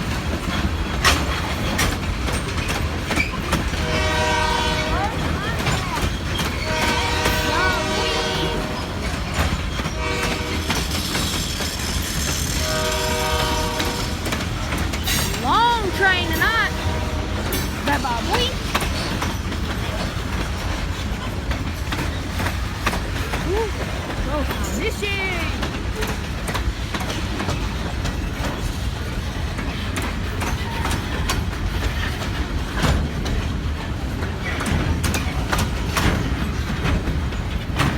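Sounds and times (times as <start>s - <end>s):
wheels knocking on rail joints: 0.0s - 24.7s
train rumbling past: 0.0s - 37.9s
locomotive horn: 3.7s - 5.7s, 6.4s - 11.0s, 12.4s - 14.5s, 15.5s - 18.4s.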